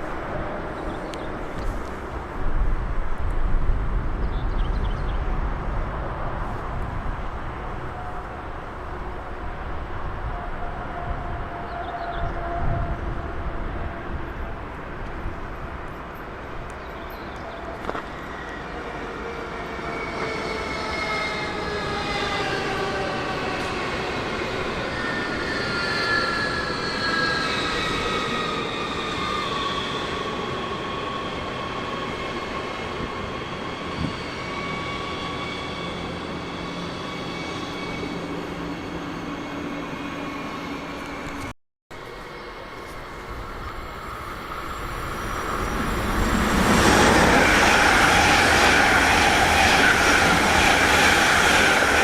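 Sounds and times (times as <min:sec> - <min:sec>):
wheels rumbling on rail: 0:31.0 - 0:52.0.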